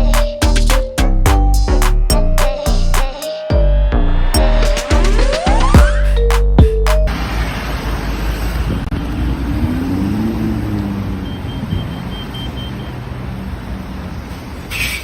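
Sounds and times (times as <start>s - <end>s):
engine and tyre noise: 4.0s - 15.0s.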